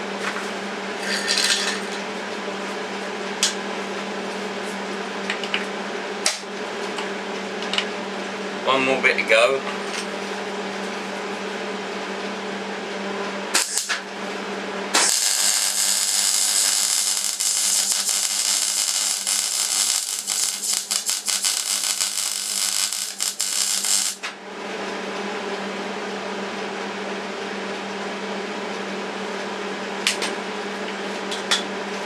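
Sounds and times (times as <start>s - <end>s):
steady hum: 7.2s - 30.8s
electric arc welding crackling: 13.6s - 14.0s, 15.0s - 24.3s.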